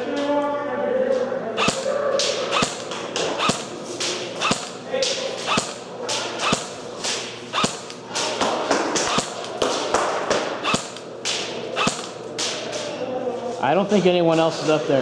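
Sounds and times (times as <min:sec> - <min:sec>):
airsoft gun shots: 0:01.6 - 0:04.8, 0:05.4 - 0:06.8, 0:07.5 - 0:08.0, 0:09.0 - 0:09.6, 0:10.5 - 0:12.2.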